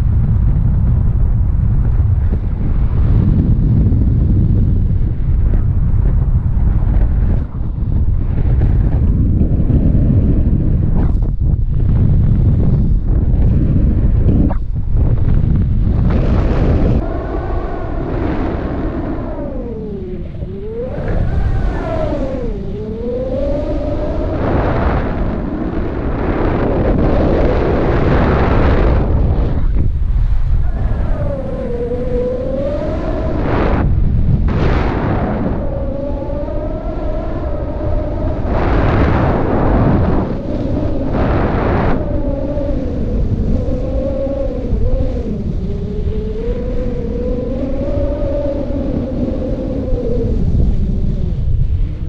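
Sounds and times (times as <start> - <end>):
wind rushing over microphone: 0.0 - 52.0
wavering gliding tone: 16.4 - 28.1.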